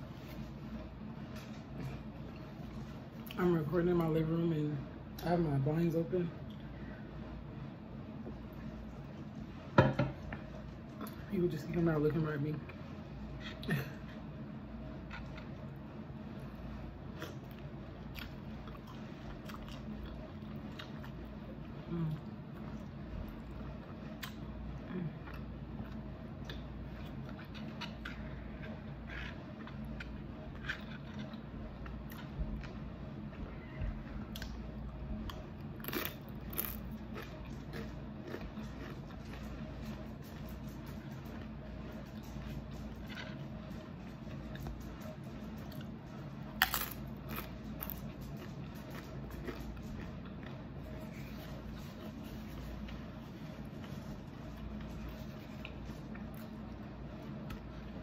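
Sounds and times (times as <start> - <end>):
low hum: 0.0 - 58.0
person chewing crispy food: 17.0 - 33.0, 33.6 - 44.9, 45.5 - 58.0.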